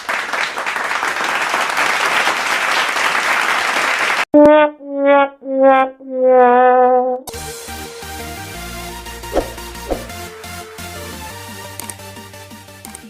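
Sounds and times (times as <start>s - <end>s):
click: 11.8s - 12.0s.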